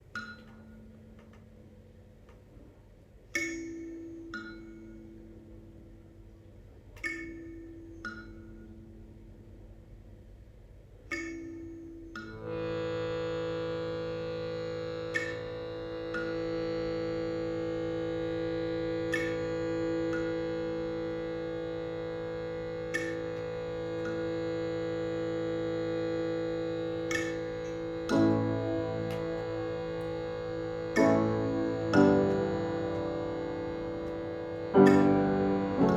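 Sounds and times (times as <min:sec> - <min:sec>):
thumb piano plucking single notes: 0:11.1 - 0:35.9
chord: 0:12.2 - 0:35.9
free-reed drone: 0:12.4 - 0:35.9.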